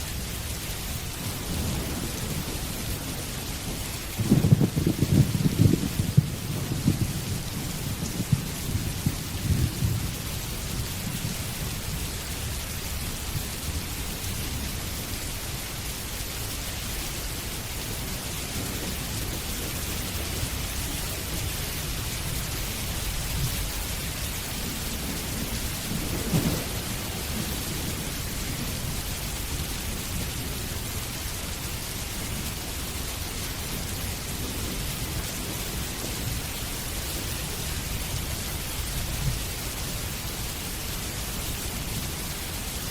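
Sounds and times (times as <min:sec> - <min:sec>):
steady rain: 0:00.0 - 0:42.9
thunder rumbling: 0:00.1 - 0:15.4, 0:17.3 - 0:42.9.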